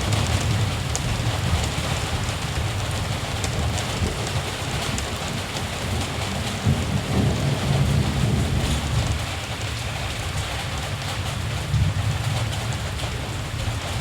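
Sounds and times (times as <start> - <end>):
rain drop ticks: 0.0 - 7.4
distant thunder rumble: 0.0 - 9.4
steady rain falling: 0.0 - 14.0.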